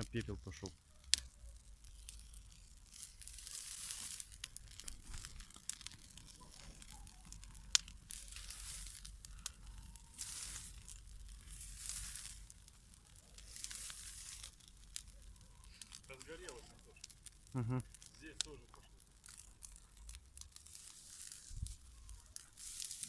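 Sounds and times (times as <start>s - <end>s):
dry grass burning with hissing: 0.0s - 23.0s
fire crackling and popping: 0.0s - 23.0s.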